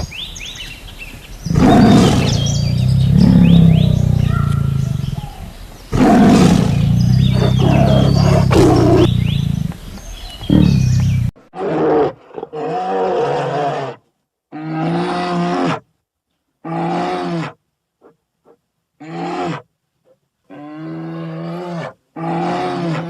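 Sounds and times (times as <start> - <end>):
birds chirping: 0.0 - 11.4
large animal roaring: 1.5 - 13.7
low rumble: 6.6 - 11.4.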